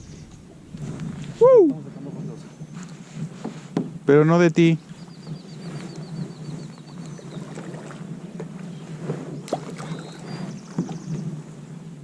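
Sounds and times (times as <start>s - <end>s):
paddle splashing in water: 4.8s - 11.6s.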